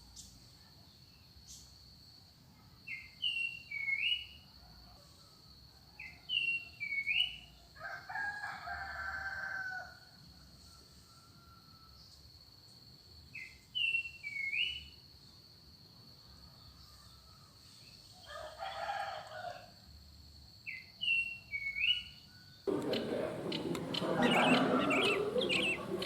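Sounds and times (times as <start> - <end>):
chorus of birds chirping: 22.7 - 26.0
lower harsh bird call: 22.7 - 26.0.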